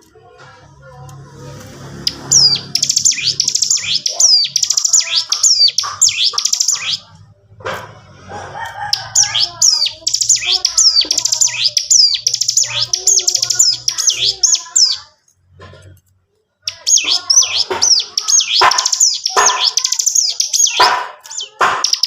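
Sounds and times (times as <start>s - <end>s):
bird singing rapid chirps: 1.6s - 7.2s, 8.8s - 15.1s, 16.6s - 22.0s.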